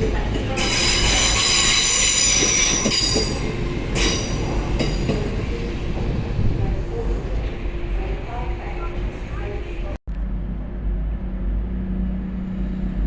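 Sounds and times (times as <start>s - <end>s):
low rumble of moving train: 0.0s - 13.0s
train wheels squealing on rails: 0.3s - 5.4s.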